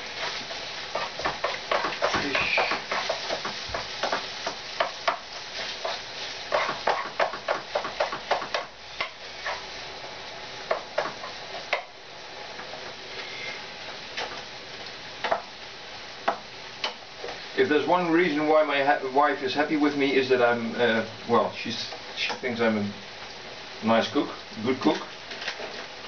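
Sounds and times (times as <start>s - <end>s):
utensil scraping a pan: 0.0s - 9.8s
food sizzling in a frying pan: 0.0s - 26.0s.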